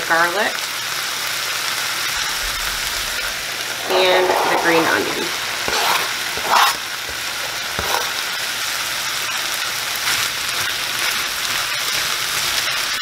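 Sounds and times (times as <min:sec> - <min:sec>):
chicken sizzling in a skillet: 0:00.0 - 0:13.0
onions scraped into pan: 0:03.1 - 0:13.0.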